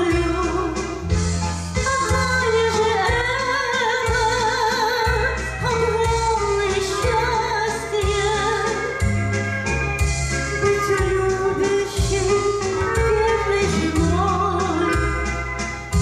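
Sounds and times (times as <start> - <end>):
instrumental accompaniment: 0.0 - 16.0
high voice singing with vibrato: 10.6 - 15.4.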